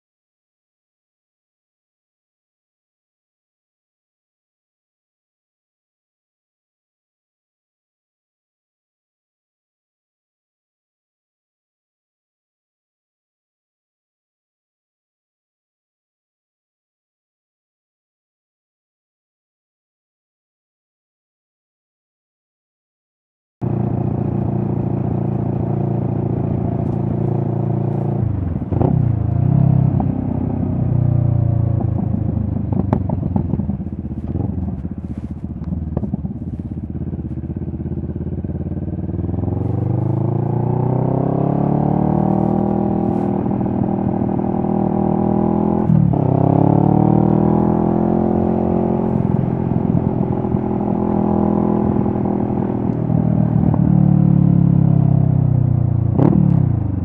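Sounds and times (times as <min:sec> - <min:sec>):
motorcycle engine revving: 0:23.6 - 0:57.0.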